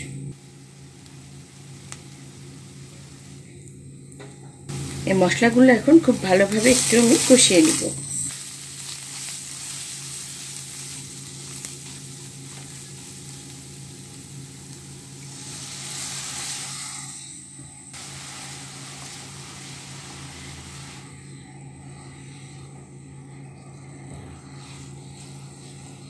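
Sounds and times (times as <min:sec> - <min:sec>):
masala sizzling in hot oil: 0:00.3 - 0:03.5, 0:04.7 - 0:21.4
spatula stirring: 0:06.2 - 0:17.2.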